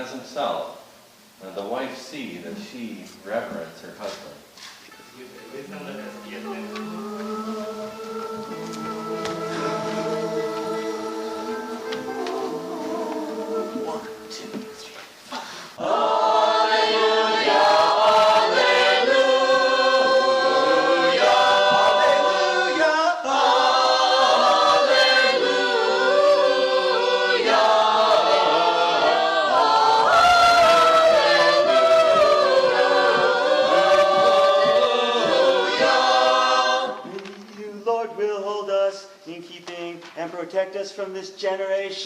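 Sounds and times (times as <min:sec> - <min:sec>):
choir singing chant: 0:05.6 - 0:15.0, 0:15.8 - 0:37.3.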